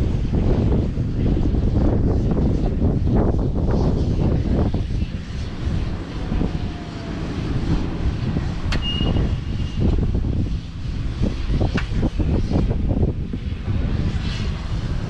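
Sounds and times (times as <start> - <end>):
tractor diesel engine running: 4.1 - 14.0
brief high steady tone: 8.7 - 9.8.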